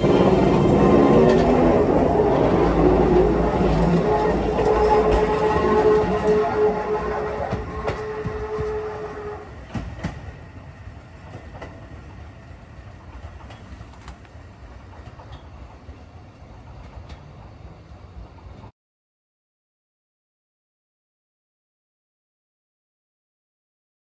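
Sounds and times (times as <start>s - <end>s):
electric train whine: 0.0s - 18.7s
faint train rumble: 0.0s - 18.7s
wheels clicking over rail joints: 9.6s - 18.7s.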